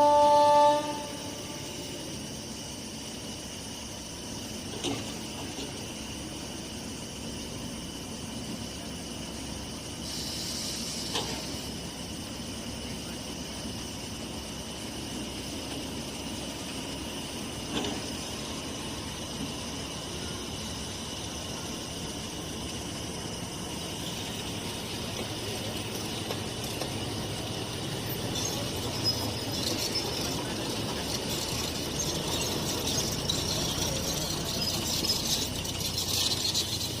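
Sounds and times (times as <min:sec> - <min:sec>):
train rumbling on rails: 0:00.0 - 0:37.0
wheel squeal: 0:27.8 - 0:37.0.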